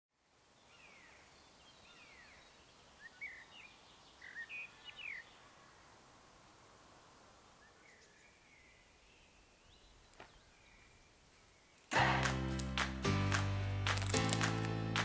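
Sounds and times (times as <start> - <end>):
faint hiss of woodland air: 0.1 - 13.1
songbirds chirping and whistling: 0.6 - 5.8, 7.5 - 11.9.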